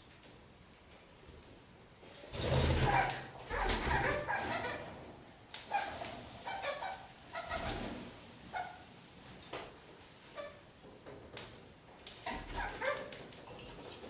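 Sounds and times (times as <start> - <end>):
parakeets chattering: 12.3 - 13.2.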